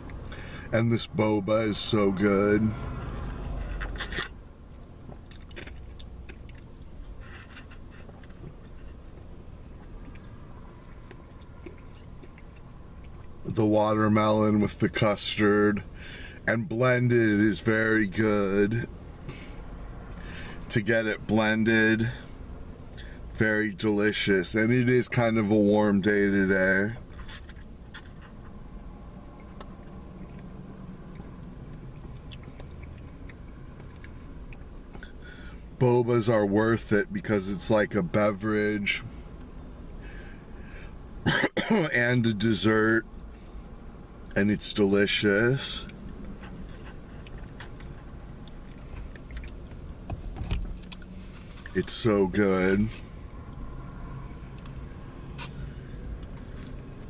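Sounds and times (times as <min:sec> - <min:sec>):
low background hum: 0:00.0 - 0:57.0
person chewing: 0:05.1 - 0:09.0, 0:09.7 - 0:13.4, 0:31.1 - 0:35.1.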